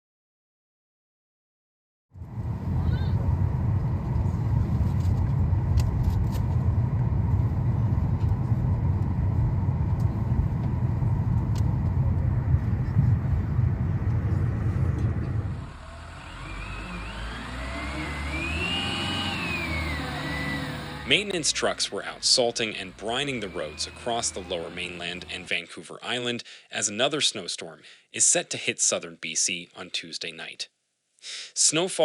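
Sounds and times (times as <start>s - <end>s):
car engine revving: 2.2s - 25.5s
low rumble of traffic: 2.2s - 25.6s.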